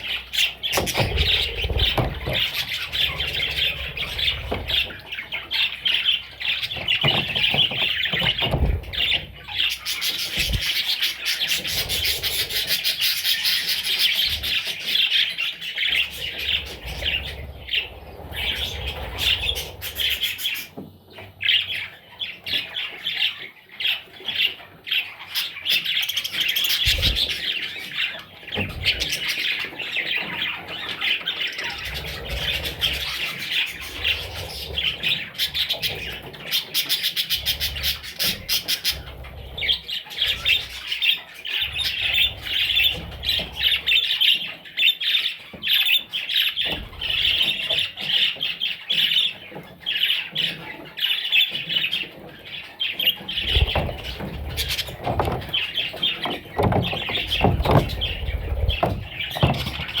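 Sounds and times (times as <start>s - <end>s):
parrot chicks chirping and squawking: 0.0s - 60.0s
low bumps: 53.3s - 60.0s.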